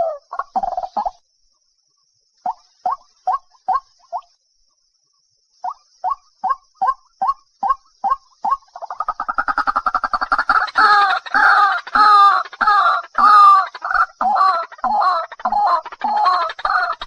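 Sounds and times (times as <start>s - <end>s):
waterhen calling: 5.6s - 17.0s.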